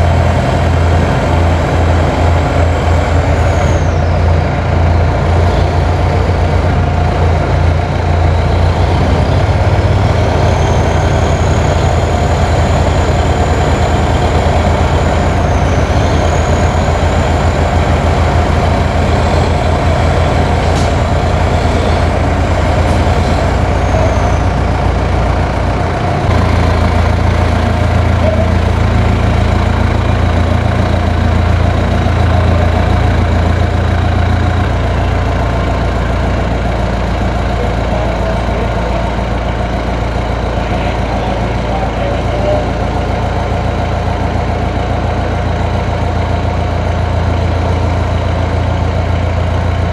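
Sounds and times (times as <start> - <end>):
truck diesel engine running: 0.0 - 49.9
faint high whistle: 10.3 - 18.1.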